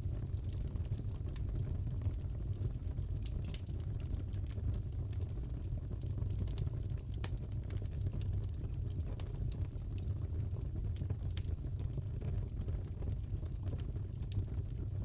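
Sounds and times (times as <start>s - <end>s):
fireplace wood crackling: 3.4s - 3.6s.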